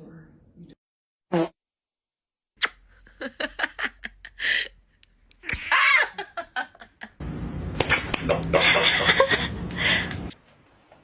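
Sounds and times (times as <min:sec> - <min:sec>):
person laughing: 0:07.8 - 0:10.3.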